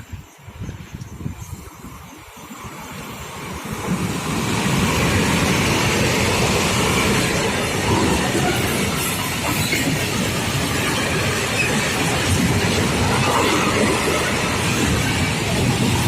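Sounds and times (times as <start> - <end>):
freight train rolling past: 0.0 - 16.0.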